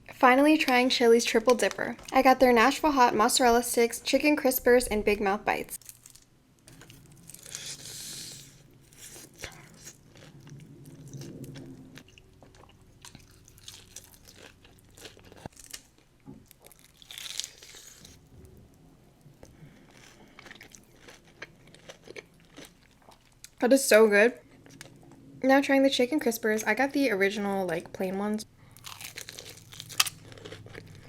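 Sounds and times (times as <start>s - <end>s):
person chewing crunchy food: 5.8s - 18.3s, 19.4s - 23.6s, 28.7s - 31.0s.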